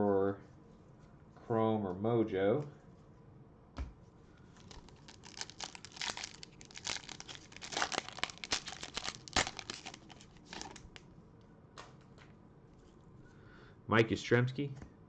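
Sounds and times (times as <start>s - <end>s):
wrapper tearing and crinkling: 4.6s - 11.0s.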